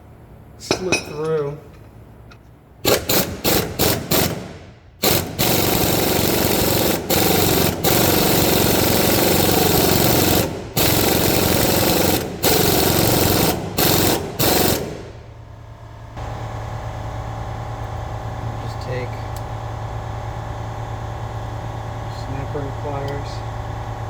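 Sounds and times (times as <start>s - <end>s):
air impact wrench hammering: 2.8s - 15.3s.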